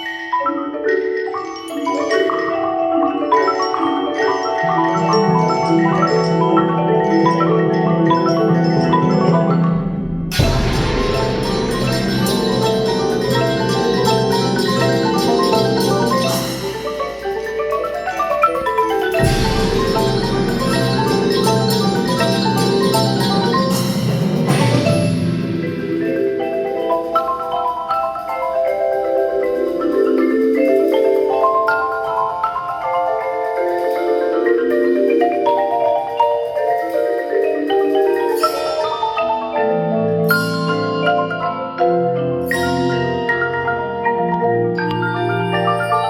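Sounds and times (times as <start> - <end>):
marimbas playing: 0.0 - 46.0
heavy low percussion hit: 9.7 - 15.2, 19.2 - 26.6
high shimmering wash: 10.3 - 27.0.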